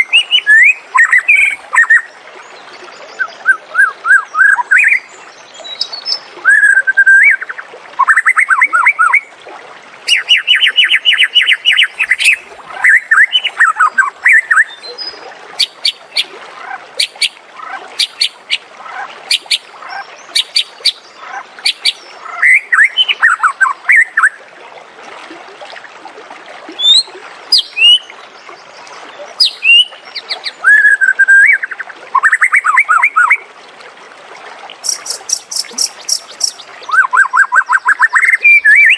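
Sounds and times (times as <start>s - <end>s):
bird singing trills and whistles: 0.0s - 2.1s, 3.1s - 9.2s, 21.7s - 24.4s, 29.4s - 33.4s, 34.8s - 38.9s.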